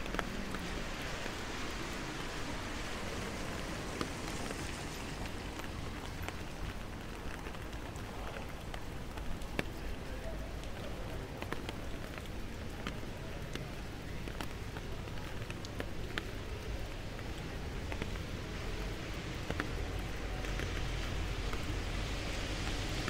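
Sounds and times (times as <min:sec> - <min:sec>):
car tyres hissing on wet road: 0:00.0 - 0:08.6, 0:15.1 - 0:23.0
raindrops ticking: 0:00.0 - 0:23.0
steady rain on street: 0:00.0 - 0:23.0.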